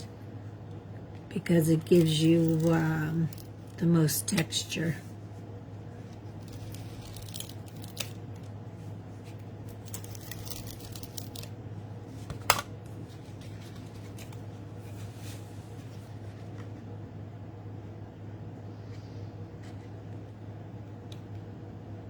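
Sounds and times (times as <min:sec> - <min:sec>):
steady low hum: 0:00.0 - 0:22.0
paper rustling: 0:06.3 - 0:08.5, 0:09.2 - 0:11.6, 0:13.0 - 0:16.8.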